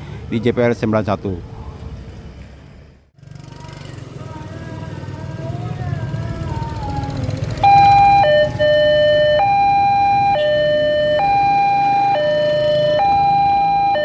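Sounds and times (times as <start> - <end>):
low traffic rumble: 0.0 - 14.0
level crossing two-tone alarm: 7.6 - 14.0.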